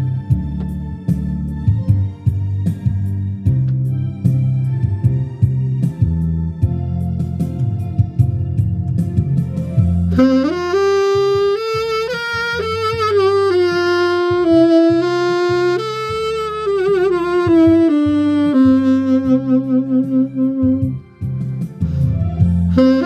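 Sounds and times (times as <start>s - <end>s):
backing track with bass line: 0.0s - 23.0s
saxophone melody with vibrato: 9.8s - 23.0s.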